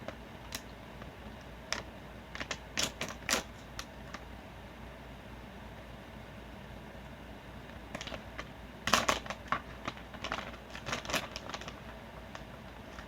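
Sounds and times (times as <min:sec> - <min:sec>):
plastic bag crinkling: 0:01.7 - 0:04.2, 0:07.9 - 0:13.0.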